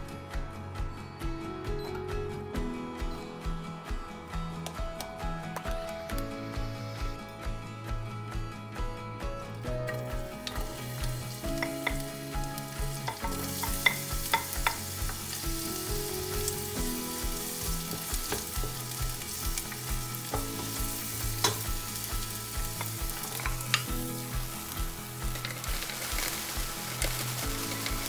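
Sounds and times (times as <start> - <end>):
background music with beat: 0.0 - 28.0
onion sizzling in hot oil: 9.9 - 28.0.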